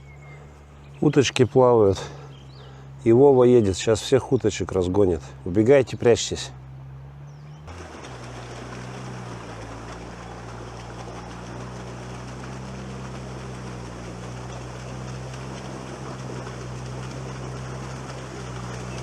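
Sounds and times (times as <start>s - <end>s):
vehicle engine droning: 0.0s - 19.0s
water washing: 7.7s - 19.0s.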